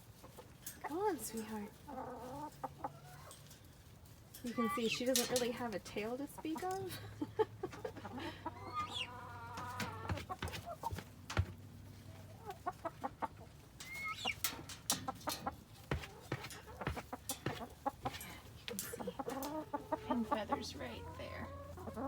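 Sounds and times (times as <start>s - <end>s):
hens clucking and calling: 0.1s - 22.0s.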